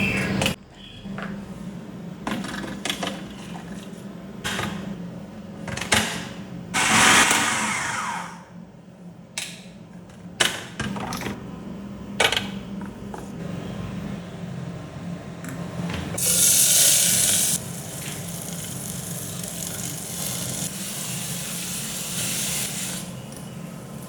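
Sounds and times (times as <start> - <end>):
loud rushing noise: 6.8 - 8.4.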